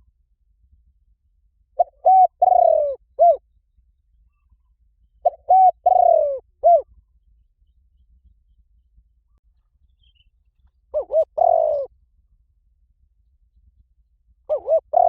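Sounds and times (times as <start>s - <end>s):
dove cooing: 1.8s - 3.4s, 5.2s - 6.9s, 10.9s - 11.9s, 14.5s - 15.0s.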